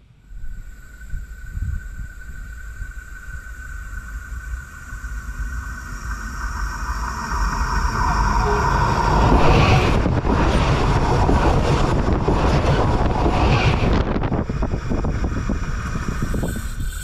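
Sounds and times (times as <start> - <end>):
electric train approaching: 0.2 - 17.0
high-pitched ringing tone: 4.8 - 10.4.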